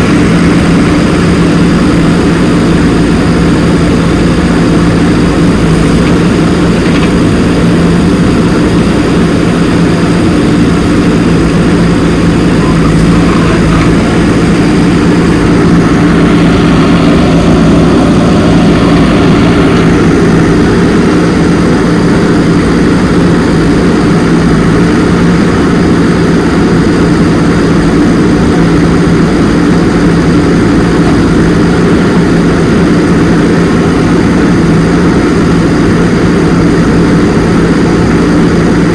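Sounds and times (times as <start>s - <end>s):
machine motor humming: 0.0s - 26.9s.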